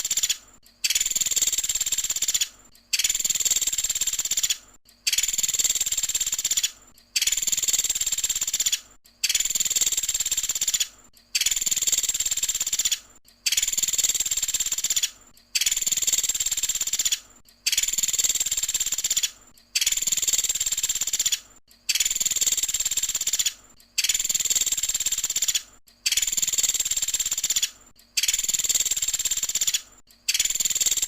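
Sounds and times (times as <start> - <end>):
woodpecker rattling trill: 0.0 - 31.0.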